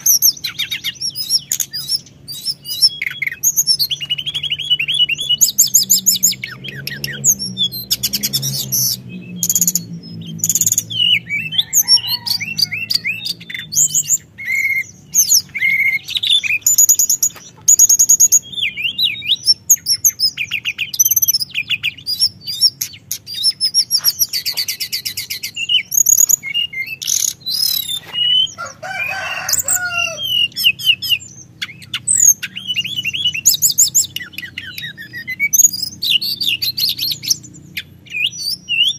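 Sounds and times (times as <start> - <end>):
songbird singing trills: 0.0 - 38.9.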